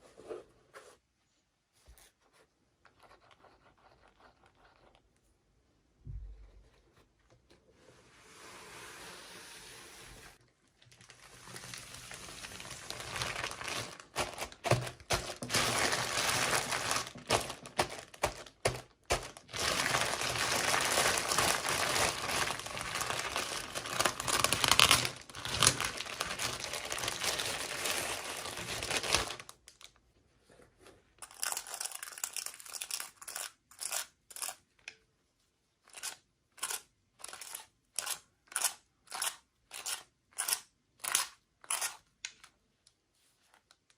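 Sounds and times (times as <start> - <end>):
packaging crinkling and tearing: 10.7 - 30.0.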